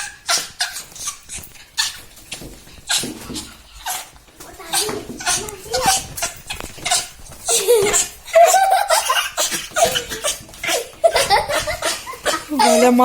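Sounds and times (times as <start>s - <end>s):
people laughing and giggling: 5.4s - 13.0s.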